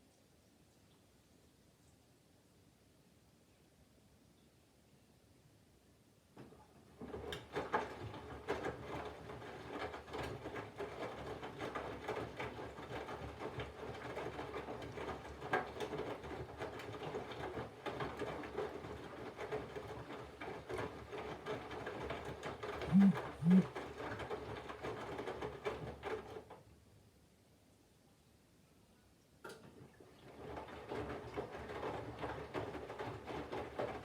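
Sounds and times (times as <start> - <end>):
wet laundry tumbling and rattling: 6.8 - 22.8, 30.1 - 34.0.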